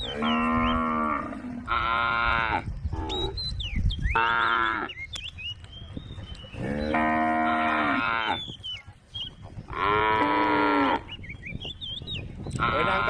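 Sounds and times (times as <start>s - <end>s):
cows mooing: 0.0s - 3.4s, 4.2s - 5.0s, 6.5s - 8.5s, 9.7s - 11.1s, 12.6s - 13.0s.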